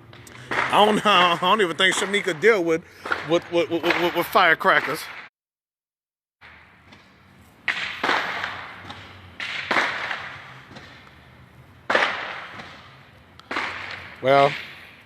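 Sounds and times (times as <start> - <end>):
distant firecracker bangs: 0.3 - 5.3, 6.4 - 15.0.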